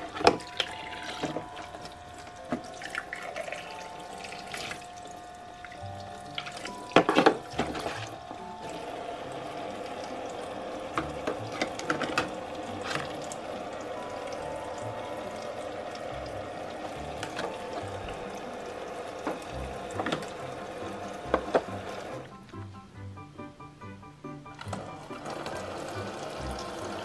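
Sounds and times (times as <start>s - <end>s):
plastic toy cups clicking: 10.9s - 13.3s.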